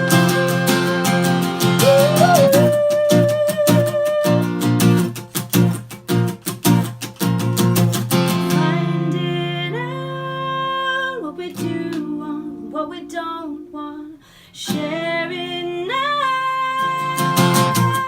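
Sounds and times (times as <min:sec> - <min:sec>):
woman singing long notes: 0:00.0 - 0:04.6
acoustic guitar chords: 0:00.0 - 0:18.0.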